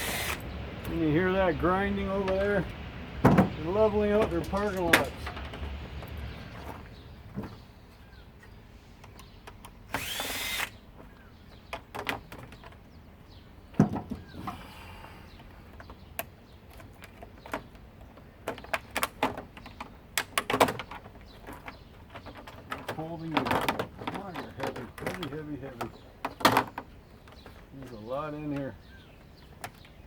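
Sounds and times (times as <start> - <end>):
power drill whining: 0.0 - 0.5, 10.0 - 10.8.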